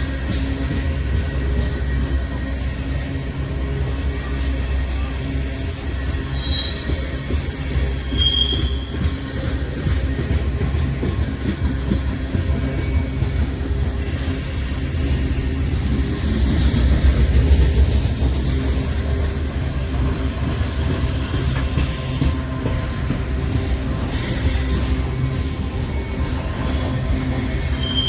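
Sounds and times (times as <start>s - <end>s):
freight train rumbling past: 0.0s - 28.0s
faint wheel squeal: 6.0s - 9.2s, 27.7s - 28.0s.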